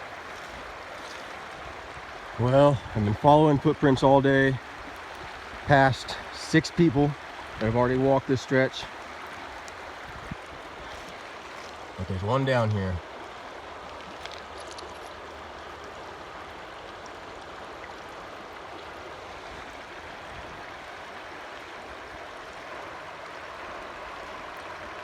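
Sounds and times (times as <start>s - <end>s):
creek water rushing: 0.0s - 25.0s.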